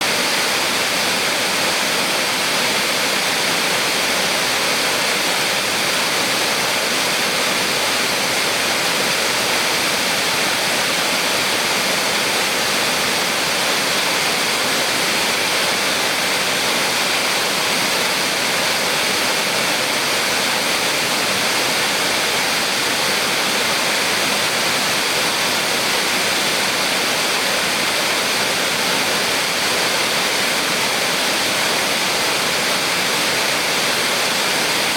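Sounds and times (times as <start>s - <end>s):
small waterfall splashing: 0.0s - 34.9s.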